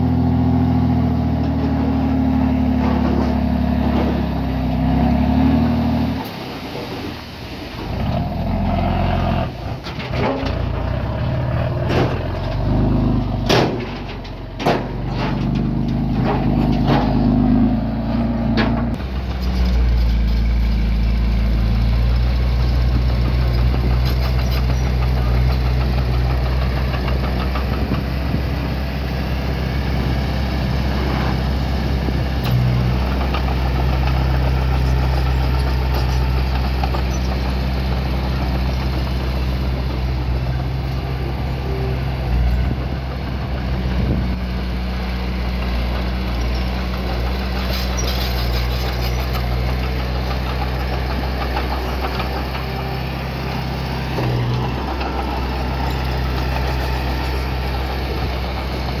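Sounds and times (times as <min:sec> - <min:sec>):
sharp knocks and clanks: 0:11.8 - 0:19.0
earthmoving machine engine droning: 0:48.7 - 0:59.0.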